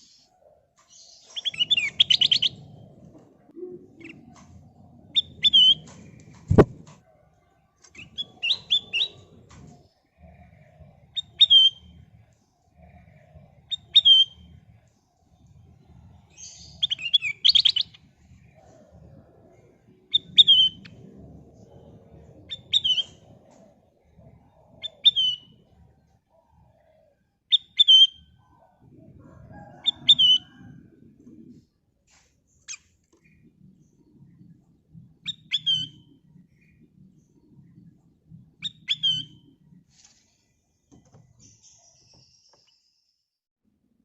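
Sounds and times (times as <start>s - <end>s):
faint low rumble: 2.0s - 16.8s, 17.9s - 27.4s, 28.3s - 39.9s
bulbul calling: 5.1s - 6.8s, 35.2s - 36.7s.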